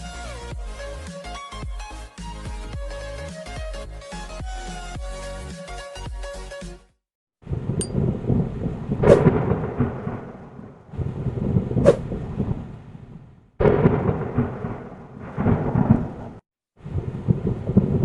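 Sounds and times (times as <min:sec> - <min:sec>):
rain: 0:07.4 - 0:18.0
sharp thunder cracks: 0:07.4 - 0:18.0
thunder rumbling: 0:07.4 - 0:18.0.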